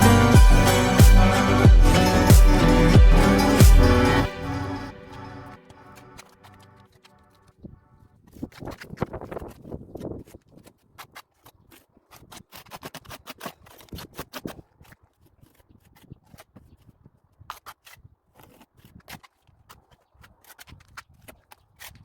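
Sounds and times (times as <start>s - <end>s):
hand tool scraping a wall: 8.4s - 16.8s.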